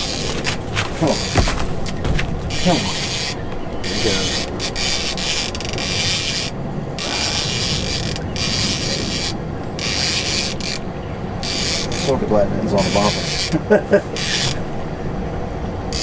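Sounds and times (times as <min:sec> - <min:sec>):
fishing reel whirring and ratcheting: 0:03.0 - 0:10.8, 0:11.4 - 0:12.2, 0:12.8 - 0:13.6, 0:14.2 - 0:14.6.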